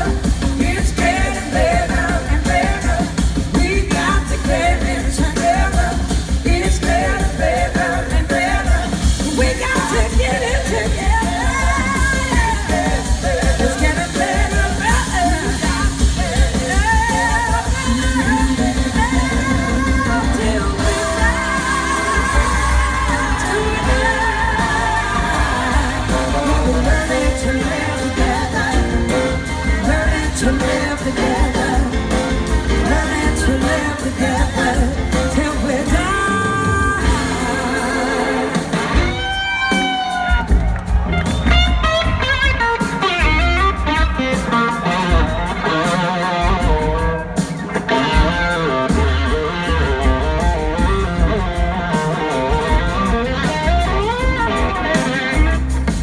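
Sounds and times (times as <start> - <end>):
live rock band playing: 0.0 - 56.0
gliding lead melody: 17.8 - 39.8.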